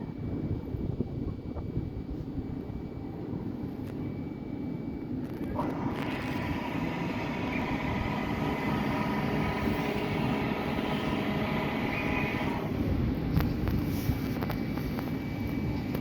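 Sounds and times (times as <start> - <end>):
electric train rumbling: 0.0 - 16.0
traction motors whining: 3.8 - 16.0.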